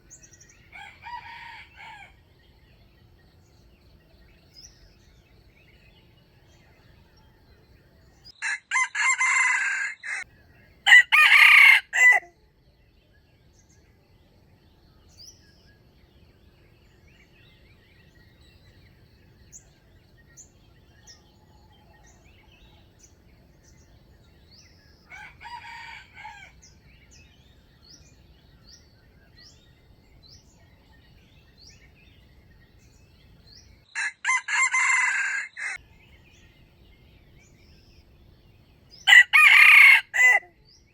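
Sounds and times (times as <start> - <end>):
small birds chirping: 0.0 - 8.5, 9.6 - 40.9
roosters crowing: 0.7 - 2.3, 8.4 - 12.3, 25.0 - 26.8, 33.9 - 35.8, 39.0 - 40.6.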